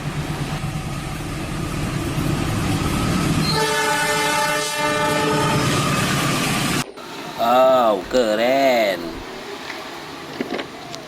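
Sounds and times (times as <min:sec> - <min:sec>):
train rumbling: 0:00.0 - 0:11.0
train horn: 0:03.4 - 0:06.4.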